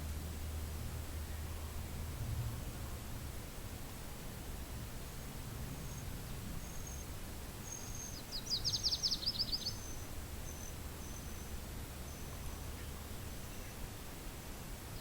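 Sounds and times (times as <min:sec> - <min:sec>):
low wind rumble: 0:00.0 - 0:15.0
bird trill: 0:05.9 - 0:13.8.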